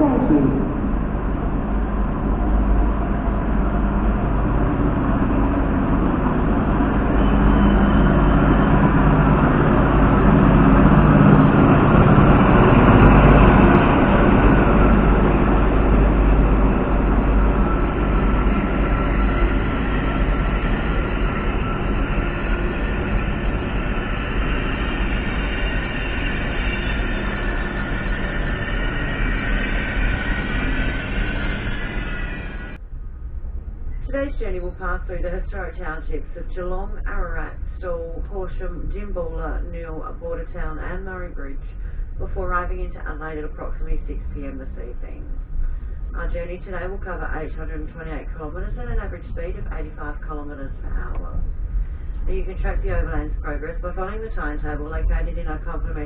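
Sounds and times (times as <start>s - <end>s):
high squealing tones: 0.0s - 1.3s, 16.8s - 32.8s
diesel train rumble: 0.0s - 56.0s.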